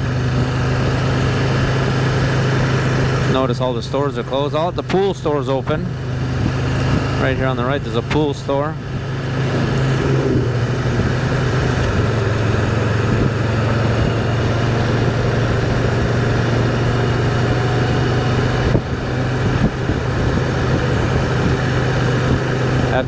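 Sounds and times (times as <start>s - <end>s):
motorcycle engine running: 0.0s - 23.0s
wind rushing over microphone: 5.3s - 23.0s.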